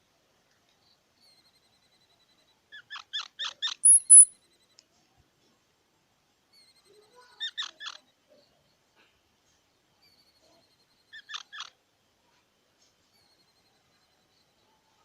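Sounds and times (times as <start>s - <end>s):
high-pitched squirrel squeak: 1.2s - 4.6s, 6.5s - 8.1s, 10.0s - 11.8s, 13.1s - 14.6s
squirrel calling: 2.7s - 4.4s, 6.6s - 8.1s, 10.0s - 11.8s.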